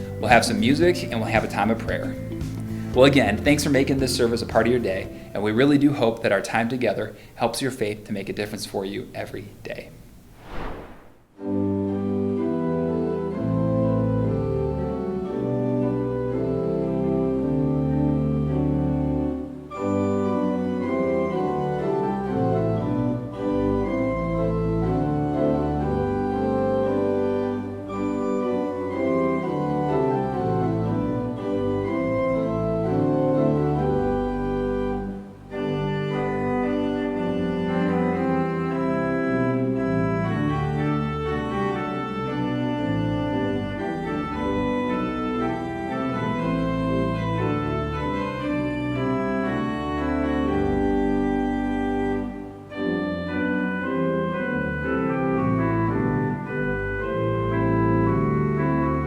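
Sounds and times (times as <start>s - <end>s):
organ playing held chords: 0.0s - 5.7s, 11.8s - 59.0s.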